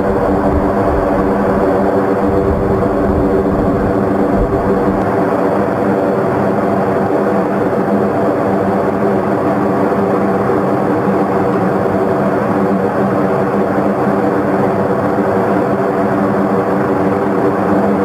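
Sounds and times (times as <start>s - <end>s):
rushing noise: 0.0s - 5.6s
aircraft engines droning: 0.0s - 18.0s.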